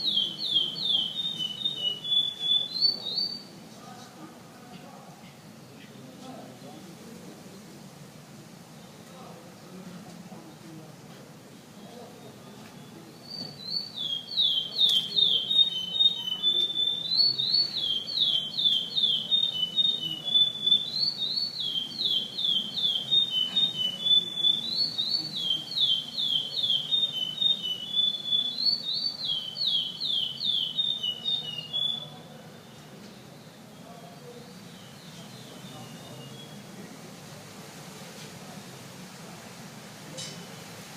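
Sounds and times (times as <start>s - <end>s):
finch singing whistled song: 0.0s - 3.5s, 12.8s - 32.2s, 34.7s - 36.6s.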